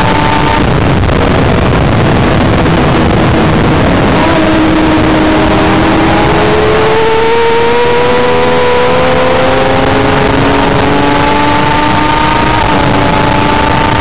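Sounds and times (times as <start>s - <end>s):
motorcycle engine accelerating: 0.0s - 14.0s
wind rush over microphone: 0.0s - 14.0s.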